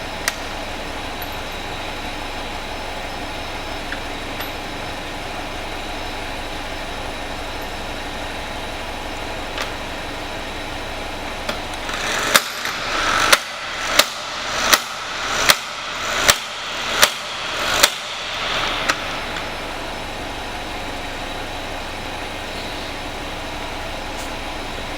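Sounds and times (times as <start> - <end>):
impact wrench hammering: 11.3 - 20.2.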